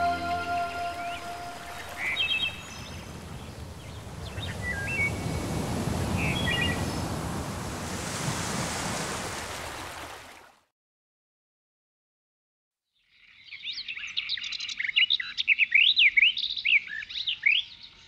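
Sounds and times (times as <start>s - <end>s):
surf rushing: 0.0s - 10.0s.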